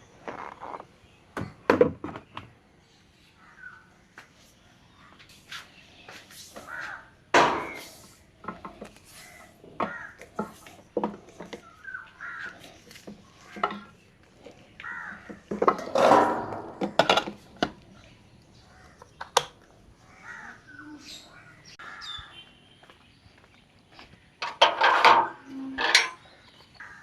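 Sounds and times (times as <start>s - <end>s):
crows cawing: 6.6s - 7.2s, 9.2s - 10.5s, 11.8s - 12.8s, 14.8s - 15.5s, 20.1s - 22.3s, 26.8s - 27.0s.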